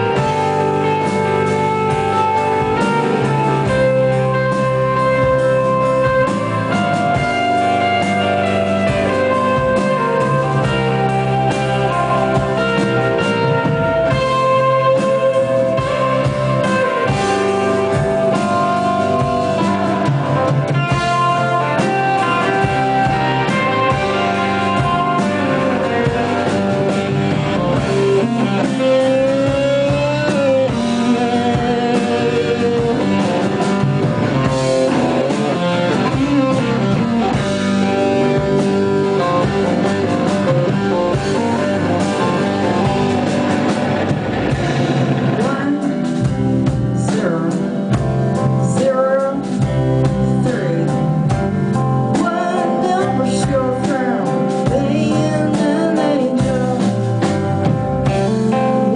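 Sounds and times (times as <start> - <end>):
live rock band playing: 0.0 - 58.9.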